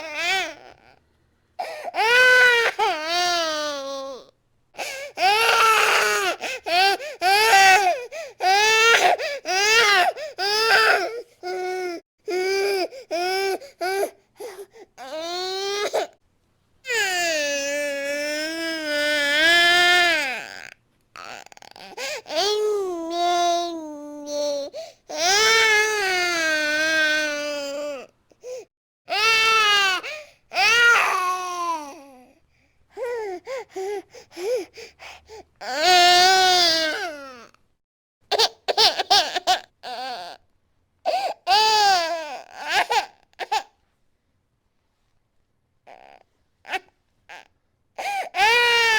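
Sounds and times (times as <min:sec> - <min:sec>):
baby crying: 0:00.0 - 0:01.0, 0:01.6 - 0:16.1, 0:16.9 - 0:28.1, 0:29.1 - 0:32.2, 0:35.6 - 0:37.5, 0:41.1 - 0:43.7, 0:45.9 - 0:48.9.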